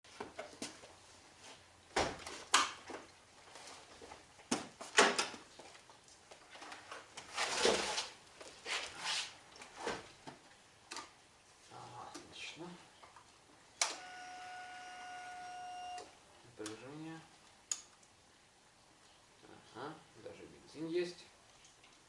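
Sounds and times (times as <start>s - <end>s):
rustling: 3.3s - 10.4s.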